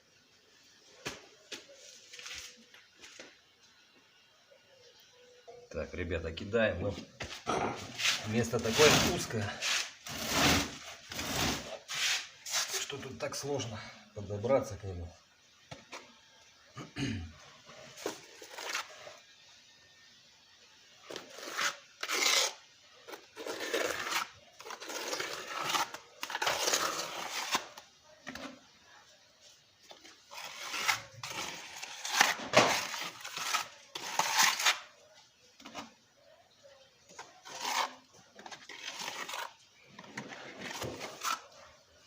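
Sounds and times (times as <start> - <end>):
metal trowel scraping mortar: 7.8 - 12.9, 21.1 - 28.6, 30.0 - 35.0, 37.1 - 41.6.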